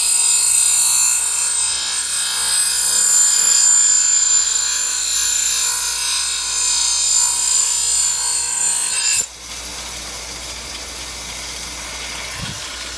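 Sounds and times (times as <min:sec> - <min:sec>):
steady hiss: 0:09.3 - 0:12.9.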